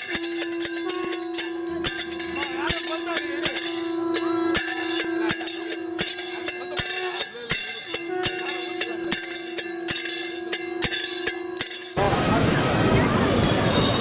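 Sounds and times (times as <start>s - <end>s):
temple bells ringing: 12.0s - 14.0s.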